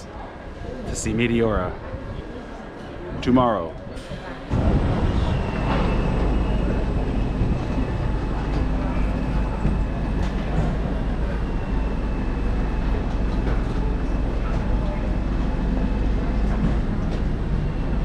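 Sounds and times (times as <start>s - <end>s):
passenger train rumbling: 0.0s - 18.0s
faint high whine: 4.5s - 18.0s.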